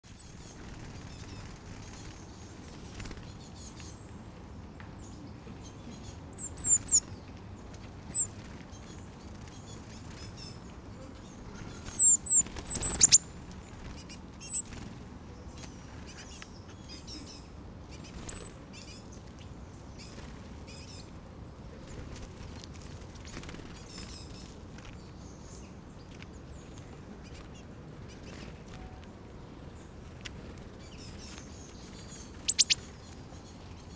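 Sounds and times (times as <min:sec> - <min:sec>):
high thin bird calls: 0:11.6 - 0:13.2, 0:32.4 - 0:32.9.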